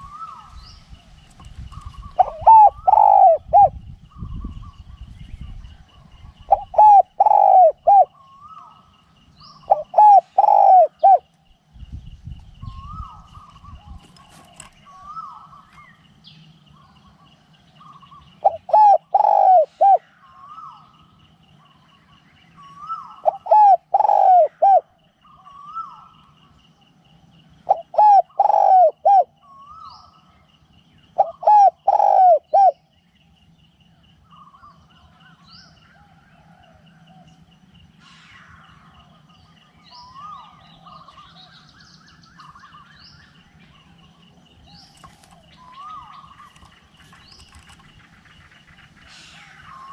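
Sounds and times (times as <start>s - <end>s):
small birds chirping: 0.0s - 49.9s
dove cooing: 1.7s - 4.7s, 6.4s - 8.8s, 9.5s - 11.3s, 17.8s - 20.9s, 22.6s - 26.4s, 27.6s - 30.3s, 31.1s - 32.9s.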